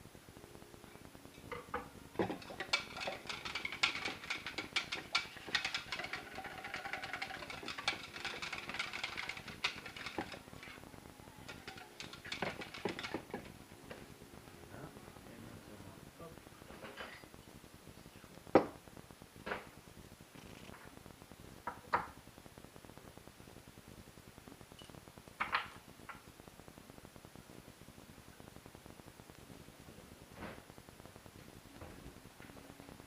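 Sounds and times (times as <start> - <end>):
utensils and dishes clattering: 1.4 - 10.8, 11.4 - 14.0.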